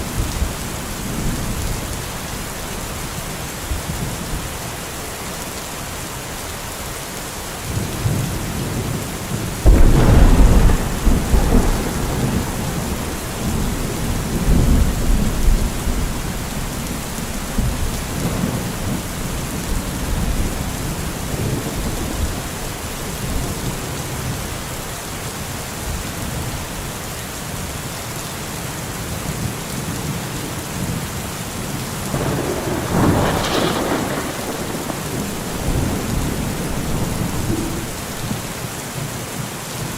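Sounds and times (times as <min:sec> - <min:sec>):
heavy rain: 0:00.0 - 0:39.9
thunder rumbling: 0:07.7 - 0:24.7, 0:32.1 - 0:38.6.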